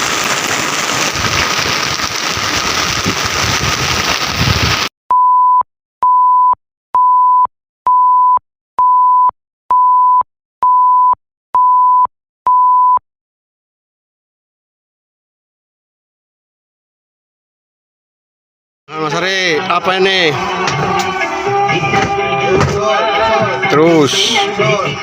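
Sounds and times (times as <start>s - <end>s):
heavy rain pouring: 0.0s - 4.9s, 19.0s - 25.0s.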